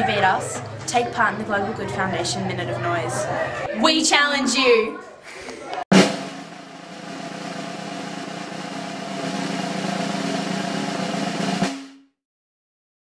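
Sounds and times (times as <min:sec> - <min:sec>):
drumming and banging rattle: 0:05.9 - 0:12.1.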